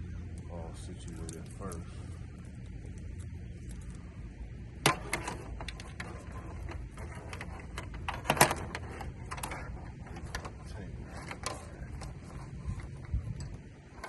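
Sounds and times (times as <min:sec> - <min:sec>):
low background rumble: 0:00.0 - 0:14.0
connectors clattering: 0:04.8 - 0:14.0.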